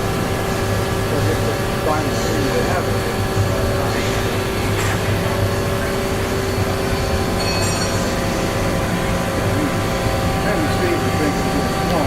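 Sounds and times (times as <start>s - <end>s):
lathe machine hum: 0.0s - 12.0s
high-pitched ringing: 5.4s - 11.9s.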